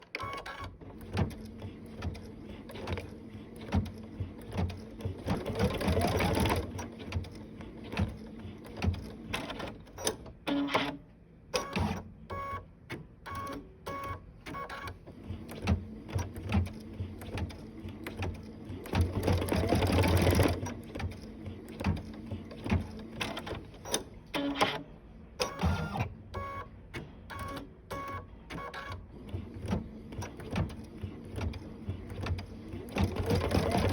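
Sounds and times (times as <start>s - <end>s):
sewing machine clicks and knocks: 0.0s - 11.0s, 12.9s - 24.8s, 27.0s - 33.9s
sewing machine stitching: 0.0s - 11.0s, 13.3s - 24.8s, 27.4s - 33.9s.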